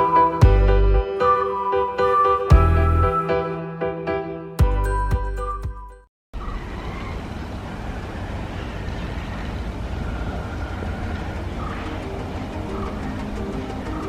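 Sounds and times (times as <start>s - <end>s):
background music: 0.0s - 6.0s
vehicle rumble: 6.4s - 14.0s.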